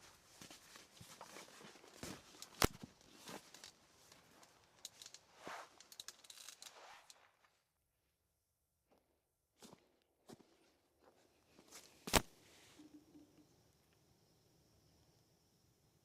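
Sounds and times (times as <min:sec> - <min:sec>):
rustling and handling noises: 0:00.0 - 0:07.6.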